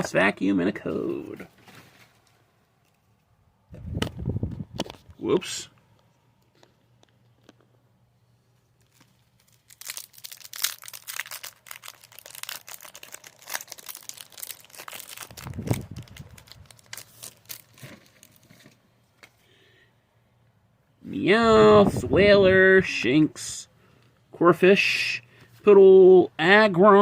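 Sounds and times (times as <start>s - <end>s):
foil wrapper crinkling and tearing: 8.8s - 18.8s.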